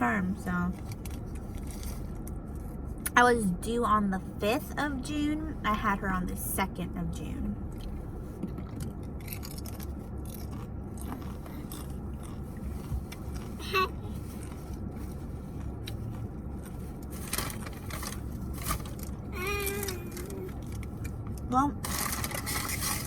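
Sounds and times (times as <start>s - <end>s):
low hum inside car: 0.0s - 23.0s
scraping and rustling handling: 0.8s - 3.0s, 7.9s - 23.0s
toddler babbling: 19.4s - 20.5s.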